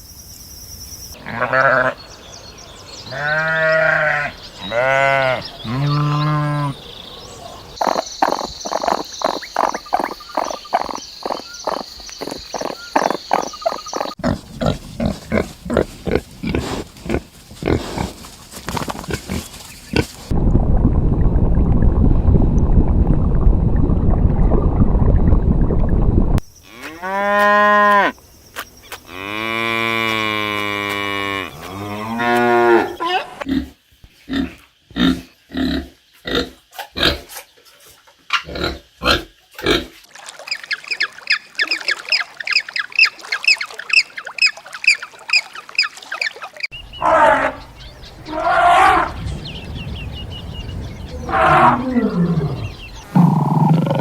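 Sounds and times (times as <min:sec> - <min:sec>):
short evenly spaced animal calls: 0:03.0 - 0:14.2, 0:40.5 - 0:54.0
cow mooing: 0:03.1 - 0:06.8, 0:47.0 - 0:49.3, 0:51.1 - 0:54.0.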